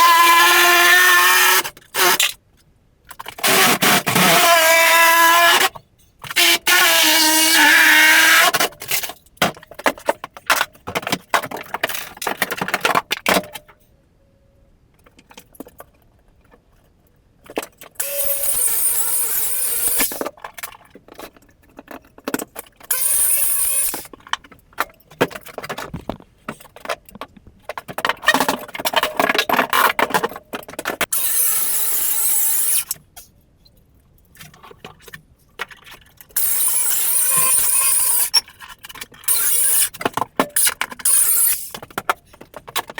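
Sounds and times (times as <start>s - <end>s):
knocks and clatter: 24.2s - 31.1s.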